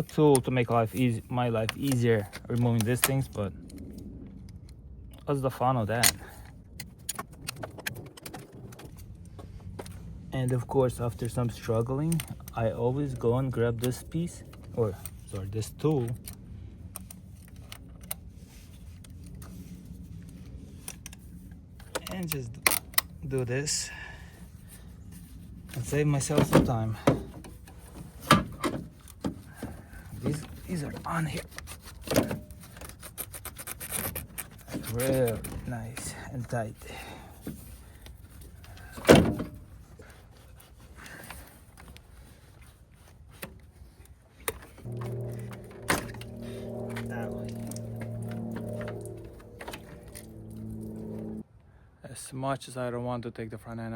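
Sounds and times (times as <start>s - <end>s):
low steady hum: 8.8s - 51.8s.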